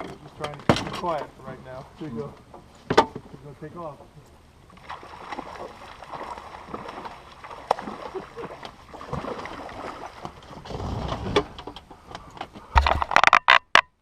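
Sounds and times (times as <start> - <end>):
water splashing around boat: 0.0 - 13.2
knocks and clicks of handling: 11.3 - 14.0.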